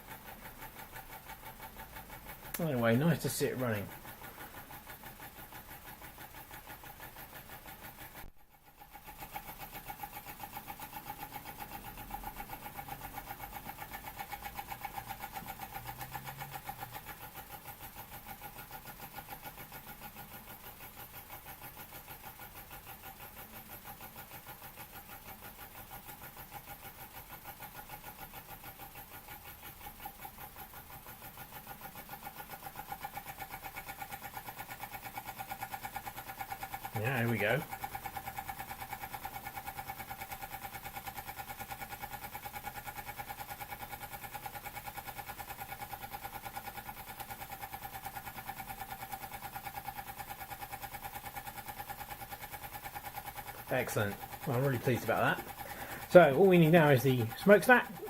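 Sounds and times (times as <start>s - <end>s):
model steam engine running: 0.0s - 58.0s.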